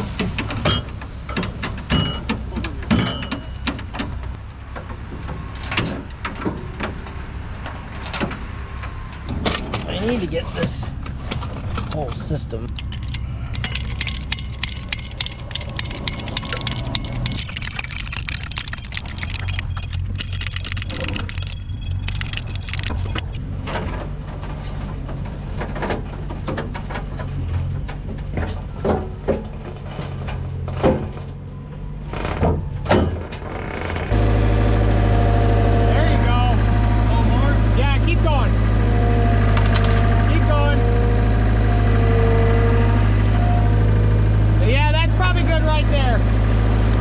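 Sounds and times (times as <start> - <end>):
rattling and clicking: 0.2 - 31.4
vehicle engine running: 10.0 - 26.2, 34.1 - 47.0.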